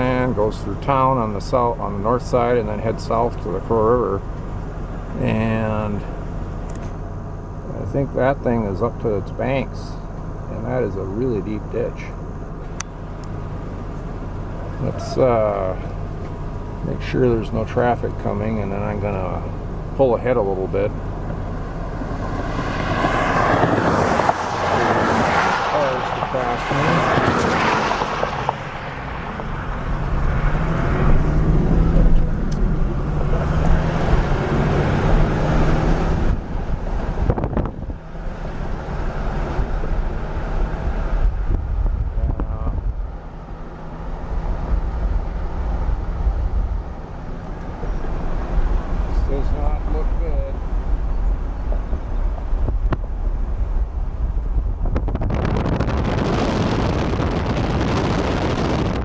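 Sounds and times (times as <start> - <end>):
car engine and tyre noise: 0.0 - 59.0
wind buffeting microphone: 20.5 - 59.0.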